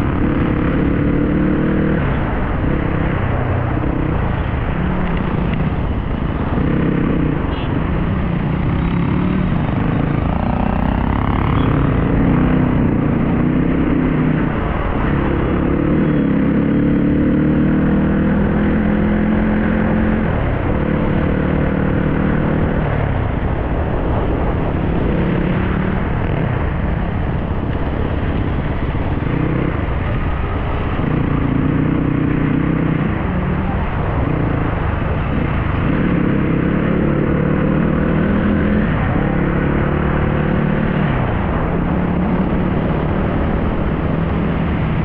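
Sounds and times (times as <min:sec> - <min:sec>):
dirt bike engine: 0:00.0 - 0:22.4.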